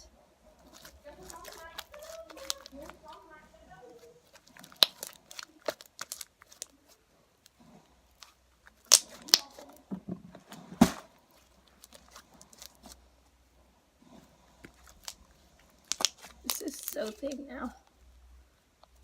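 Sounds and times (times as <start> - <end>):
sticky slime clicks and pops: 15.9 - 16.3.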